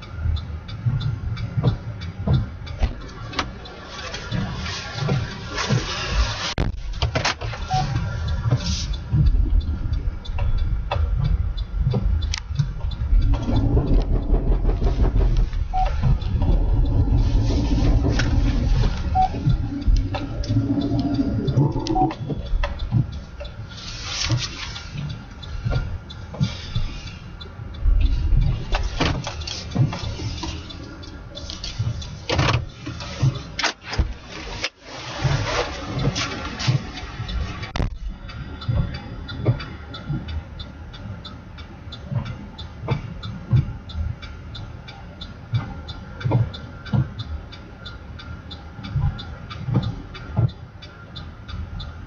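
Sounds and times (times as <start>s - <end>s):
sharp clicks and knocks: 0.0s - 41.0s, 41.6s - 50.9s
vehicle road and engine rumble: 0.0s - 52.0s
knocks and clicks: 6.6s - 23.6s.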